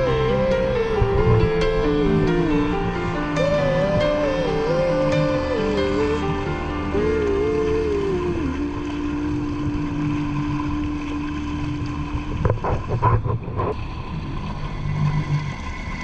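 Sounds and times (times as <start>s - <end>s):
wind on microphone: 0.0s - 13.8s.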